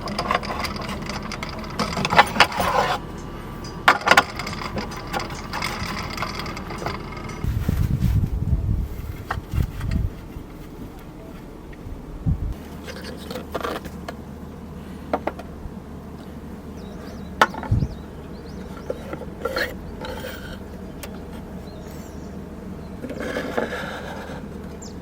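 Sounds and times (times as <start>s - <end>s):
knocks clicks and scrapes of handling: 0.0s - 7.5s
steady low hum: 0.0s - 25.0s.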